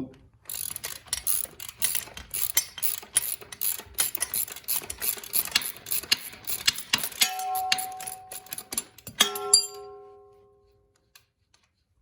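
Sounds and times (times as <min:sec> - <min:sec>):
ratchet wrench clicking: 0:00.5 - 0:09.2.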